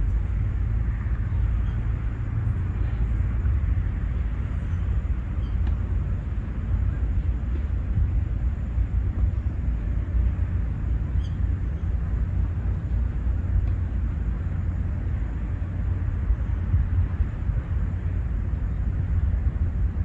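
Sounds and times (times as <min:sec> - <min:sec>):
low rumble: 0:00.0 - 0:20.0
faint high chirp: 0:04.6 - 0:05.6, 0:11.1 - 0:11.9.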